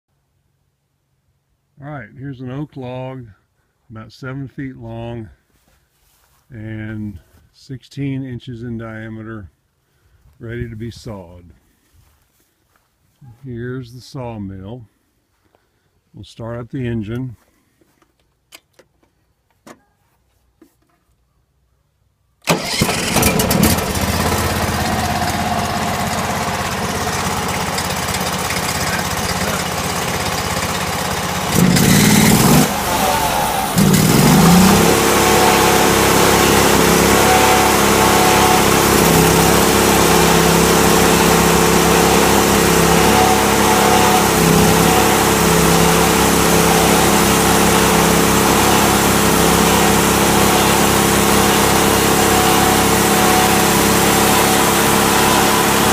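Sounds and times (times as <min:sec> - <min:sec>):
sawmill engine running: 0:22.4 - 0:55.9.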